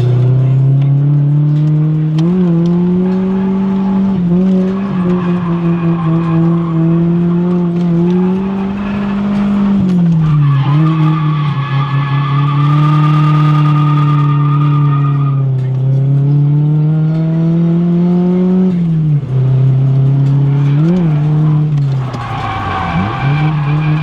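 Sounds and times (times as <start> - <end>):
car engine revving high: 0.0 - 24.0
tyres squealing: 4.5 - 15.4, 21.4 - 24.0.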